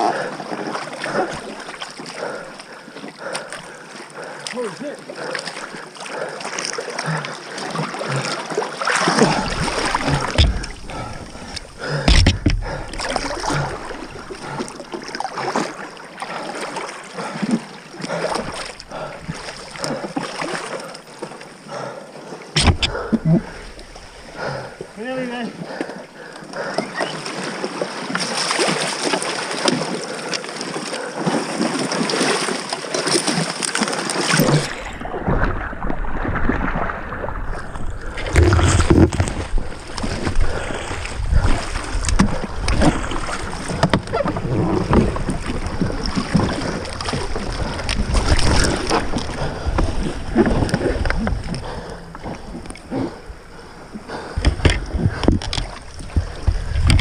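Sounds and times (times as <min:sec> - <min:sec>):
paddle splashes: 0:00.0 - 0:57.0
water sloshing against hull: 0:00.0 - 0:57.0
knocks on canoe: 0:09.5 - 0:10.9, 0:12.0 - 0:13.1, 0:22.6 - 0:23.0.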